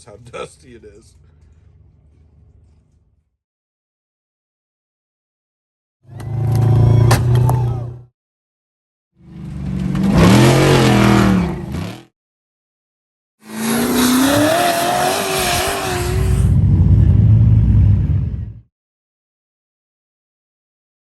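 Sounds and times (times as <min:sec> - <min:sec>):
truck engines revving past: 0:09.2 - 0:12.1, 0:13.4 - 0:18.6.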